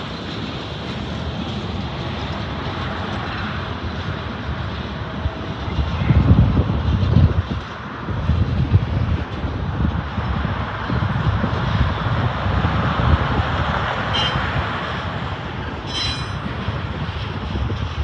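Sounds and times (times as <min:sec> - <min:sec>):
train wheels rumbling on rail: 0:00.0 - 0:18.0
high wheel squeals: 0:14.1 - 0:14.5, 0:15.8 - 0:16.5.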